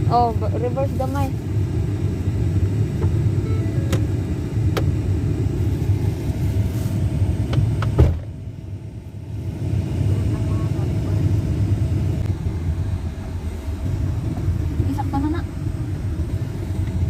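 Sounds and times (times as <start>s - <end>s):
car engine and tyres rumbling: 0.0s - 17.0s
thump: 7.9s - 8.3s.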